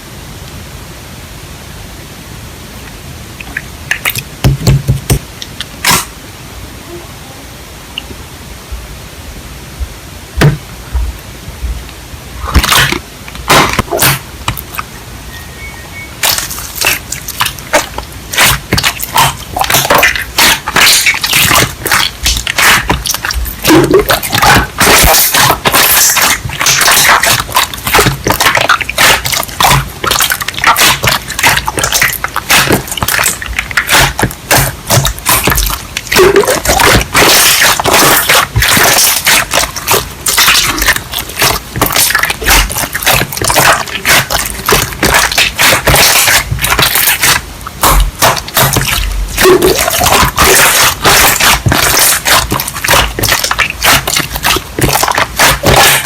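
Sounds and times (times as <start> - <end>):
wet rapid crackling: 5.1 - 6.1, 12.4 - 14.9, 16.2 - 56.0.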